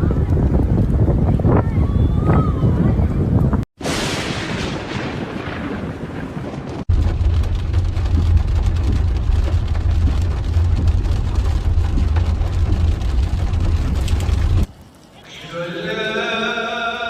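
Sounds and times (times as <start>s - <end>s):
thunderclap: 0.0s - 14.7s
low rumble of storm wind: 0.0s - 15.6s
rain: 3.8s - 16.1s.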